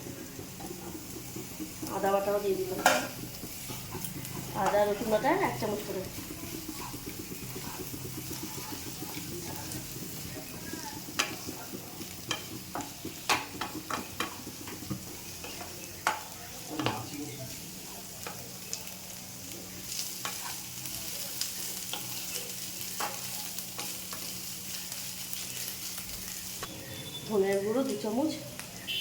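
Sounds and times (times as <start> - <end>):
onions sizzling in oil: 0.0 - 29.0
utensil scraping a pan: 2.6 - 15.8, 20.1 - 20.7.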